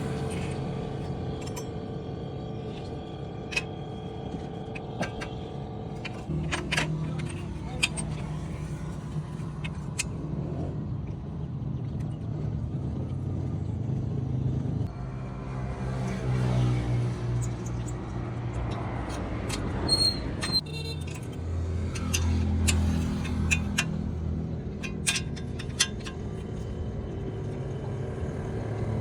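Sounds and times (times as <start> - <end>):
vehicle engine humming: 0.0 - 29.0.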